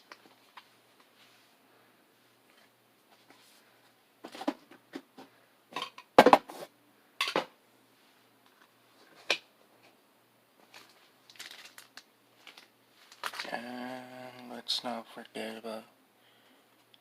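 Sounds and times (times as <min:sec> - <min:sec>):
plastic and cardboard packaging handled: 0:10.6 - 0:13.6.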